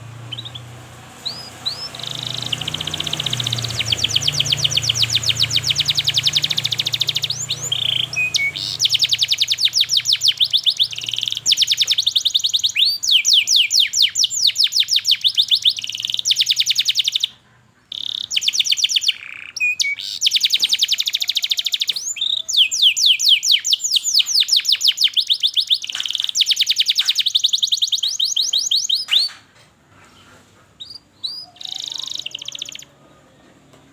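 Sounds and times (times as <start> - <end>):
canary singing rapid trills: 0.0 - 29.4, 30.8 - 33.2.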